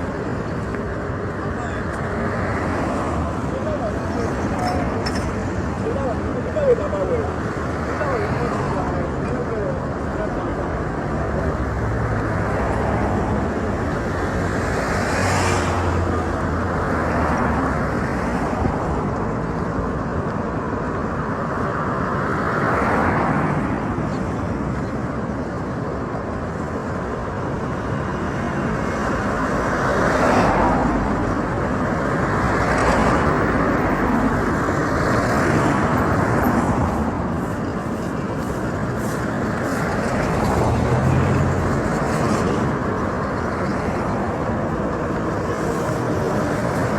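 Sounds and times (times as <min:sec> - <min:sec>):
road traffic passing: 0:00.0 - 0:46.9
vehicle going by: 0:32.2 - 0:46.9.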